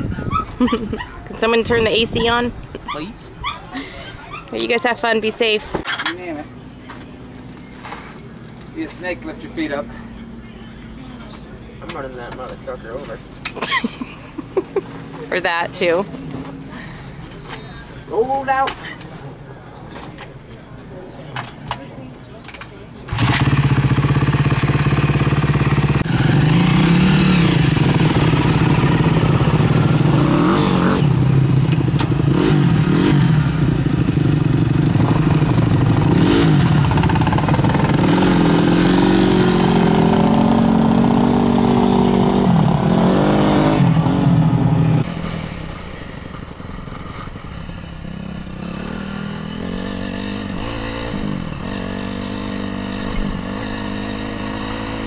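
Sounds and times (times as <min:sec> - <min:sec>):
off-road motorcycle engine revving: 0:23.1 - 0:55.0.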